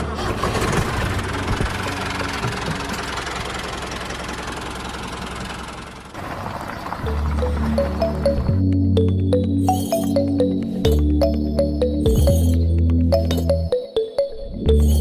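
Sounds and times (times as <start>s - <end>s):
small engine running roughly: 0.0s - 7.4s.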